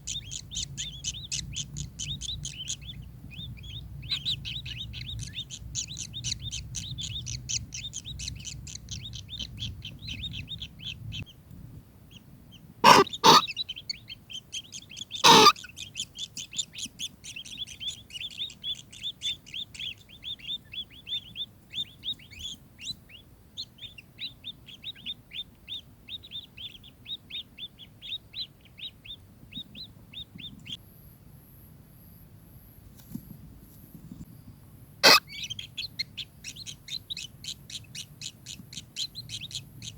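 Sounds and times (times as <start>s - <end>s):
kingfisher calling: 12.8s - 13.6s, 15.1s - 15.7s, 35.0s - 35.6s
harsh bird calls: 12.8s - 29.1s, 35.0s - 39.9s.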